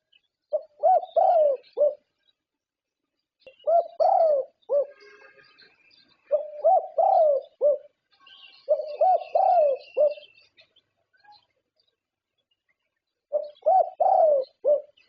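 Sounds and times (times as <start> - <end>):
dove cooing: 0.5 - 2.1, 3.5 - 5.0, 6.3 - 7.9, 8.6 - 10.4, 13.3 - 15.0.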